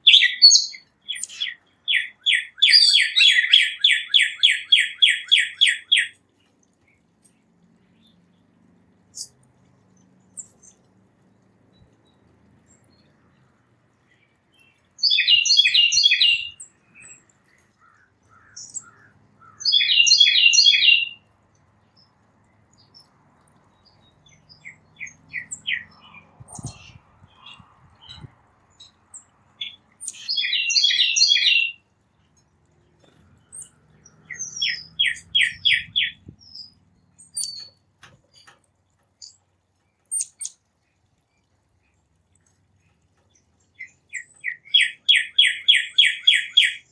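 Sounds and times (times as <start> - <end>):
songbird song phrases: 0.0 - 46.9
soft whistled bird notes: 33.2 - 37.8.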